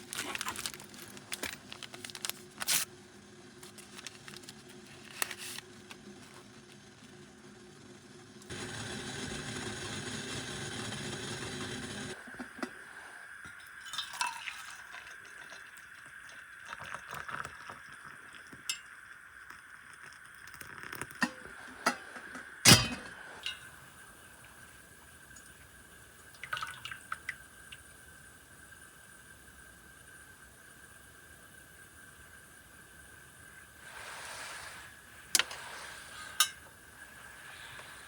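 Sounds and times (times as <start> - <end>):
dishes and cutlery clinking: 21.2 - 23.7
dishes clattering: 21.2 - 23.7.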